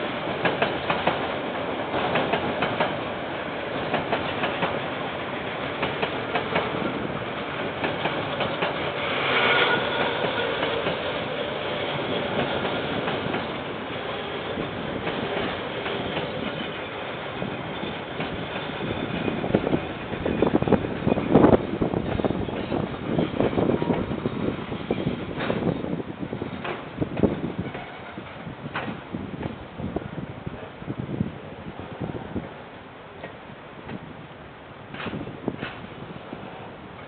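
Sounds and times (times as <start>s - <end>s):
wheels clattering over rail joints: 5.7s - 29.1s.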